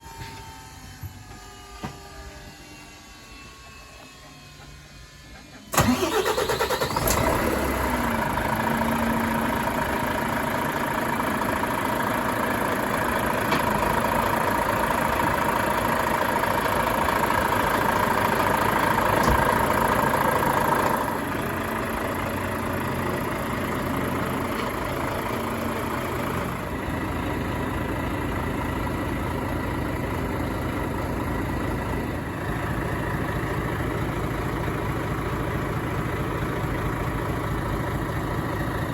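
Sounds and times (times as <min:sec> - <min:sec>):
steady whine: 0:00.0 - 0:07.1
diesel engine starting and idling: 0:05.3 - 0:38.9.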